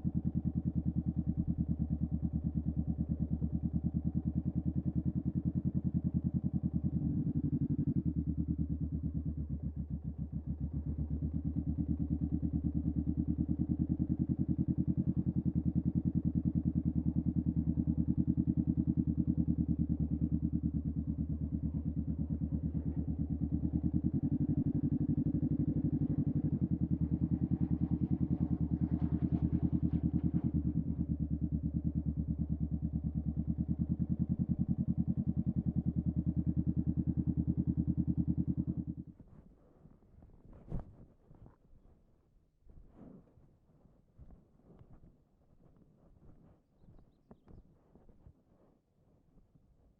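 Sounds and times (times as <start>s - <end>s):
motorcycle engine running: 0.0s - 39.4s.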